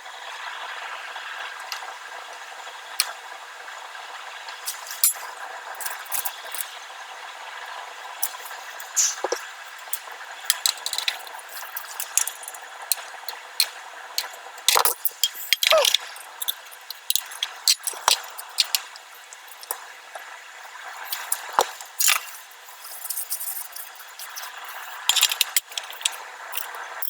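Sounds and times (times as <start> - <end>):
steady hiss: 0.0 - 27.0
sharp clicks and knocks: 8.2 - 19.8.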